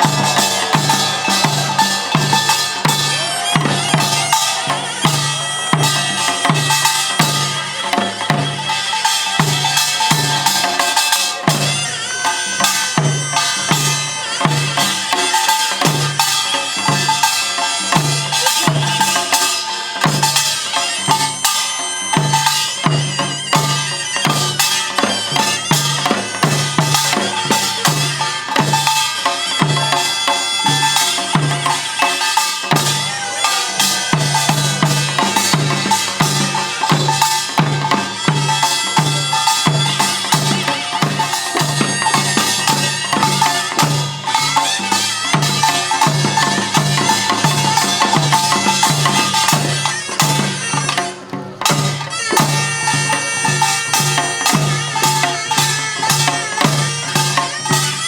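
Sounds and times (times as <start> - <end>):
drums steady low beat: 0.0 - 6.8
clanging metal gong strokes: 0.0 - 11.6.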